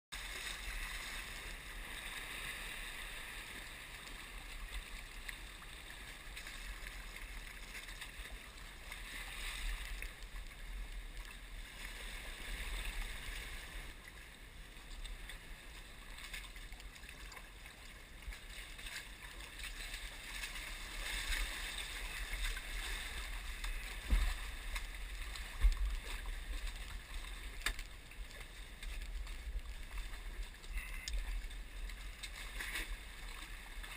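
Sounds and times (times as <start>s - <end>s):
water splashing around kayak: 0.1s - 33.9s
steady low rumble: 21.5s - 33.9s.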